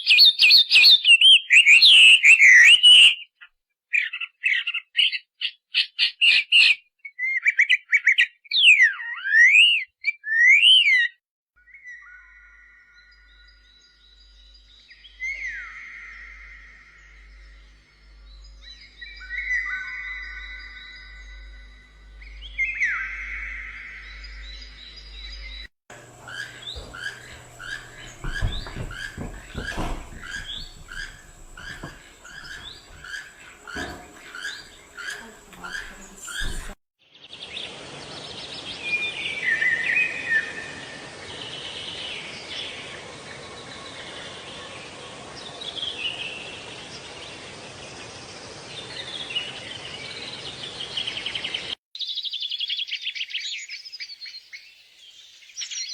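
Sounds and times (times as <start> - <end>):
many birds chirping: 11.8 - 55.9
bird falling call: 25.9 - 36.8.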